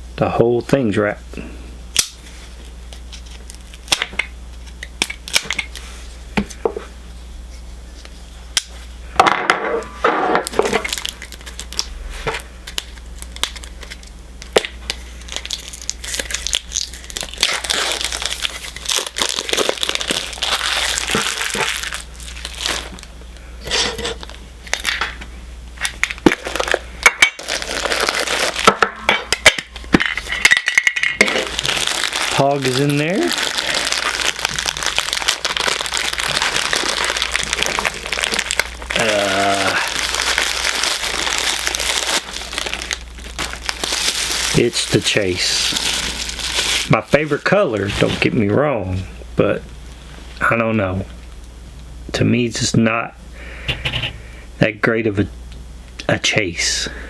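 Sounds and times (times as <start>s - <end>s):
plastic wrap crinkling: 2.1s - 6.0s, 10.4s - 25.1s, 25.8s - 48.6s.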